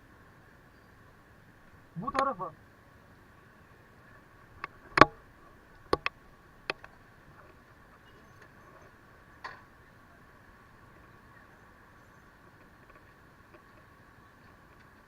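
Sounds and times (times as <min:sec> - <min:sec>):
faint steady hum: 0:00.0 - 0:15.0
sharp clicks and knocks: 0:04.6 - 0:05.2, 0:05.8 - 0:07.0.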